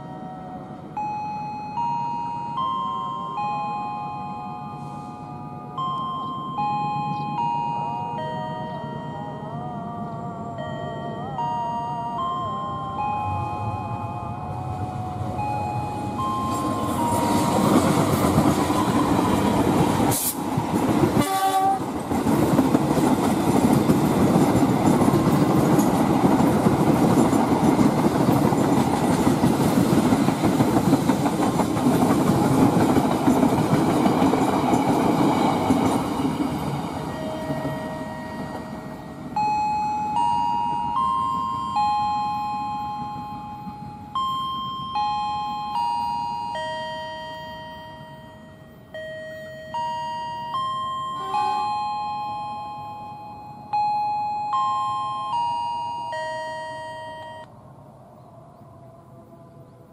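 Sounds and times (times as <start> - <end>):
train wheels rumbling on track: 13.5 - 53.3
train horn: 21.1 - 21.9, 51.2 - 51.9.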